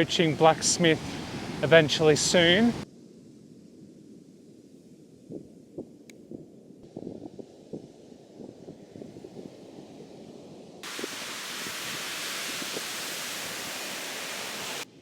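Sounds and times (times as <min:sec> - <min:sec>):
beach surf: 0:00.0 - 0:02.8, 0:10.8 - 0:14.9
wind: 0:00.0 - 0:15.0.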